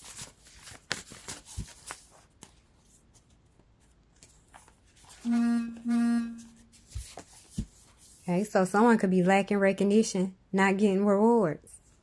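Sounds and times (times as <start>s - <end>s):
horn-like tone blasts: 5.2s - 6.8s.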